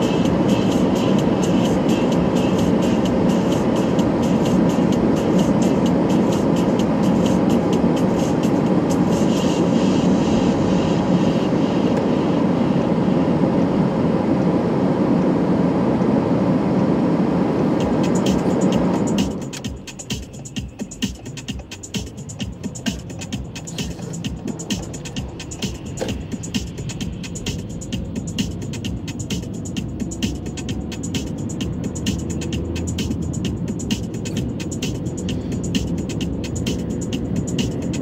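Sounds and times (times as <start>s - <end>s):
vehicle rumbling: 0.0s - 38.0s.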